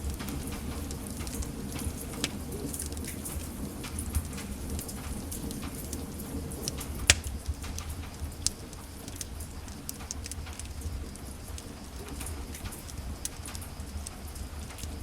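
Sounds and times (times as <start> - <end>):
low rumble of flames: 0.0 - 15.0
wood fire crackling: 0.0 - 15.0
sharp pops of fire: 6.6 - 10.9.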